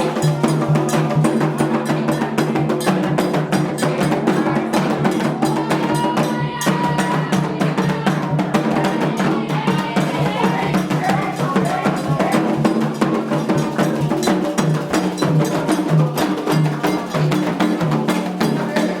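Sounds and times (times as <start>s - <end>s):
hand drums fast rhythm: 0.0s - 19.0s.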